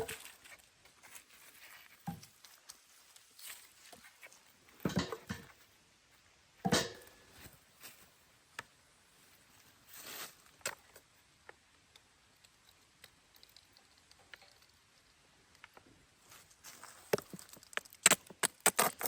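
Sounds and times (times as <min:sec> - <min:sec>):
clattering rustle: 0:00.0 - 0:05.7.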